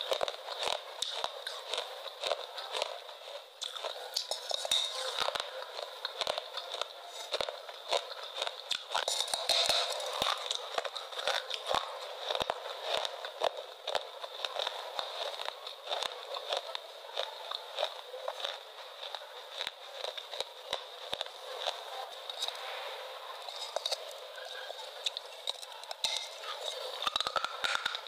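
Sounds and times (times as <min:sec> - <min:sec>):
chewing crunchy food: 0:00.0 - 0:28.0.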